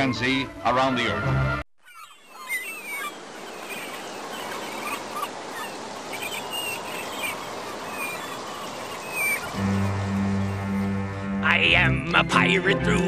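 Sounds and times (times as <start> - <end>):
birds chirping: 1.8 - 12.6
steady rushing background noise: 2.1 - 11.4.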